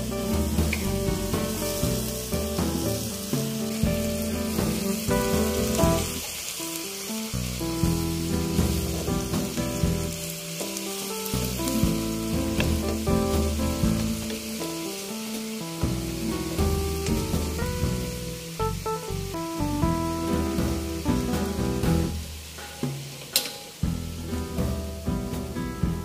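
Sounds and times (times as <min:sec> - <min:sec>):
background music with held chords: 0:00.0 - 0:06.2, 0:11.3 - 0:15.0, 0:15.6 - 0:22.9
vegetables sizzling in a wok: 0:00.0 - 0:26.0.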